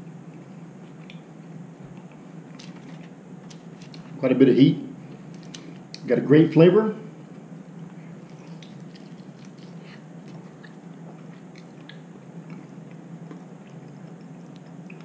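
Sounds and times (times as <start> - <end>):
steady low hum: 0.0 - 15.0
faint chewing and mouth smacking: 0.3 - 1.3, 7.8 - 15.0.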